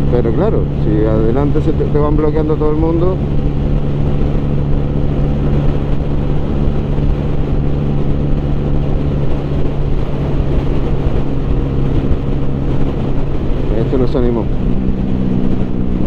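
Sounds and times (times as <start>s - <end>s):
low wind: 0.0s - 16.0s
motorcycle engine cruising: 0.0s - 16.0s
road rumble: 0.0s - 16.0s.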